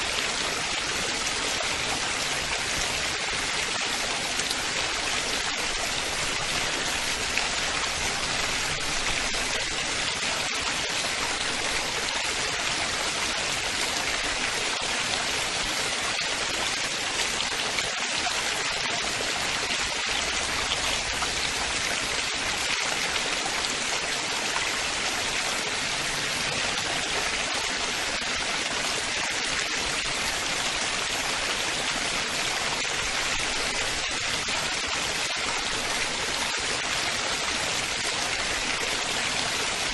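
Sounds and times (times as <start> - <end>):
running water splashing: 0.0 - 39.9.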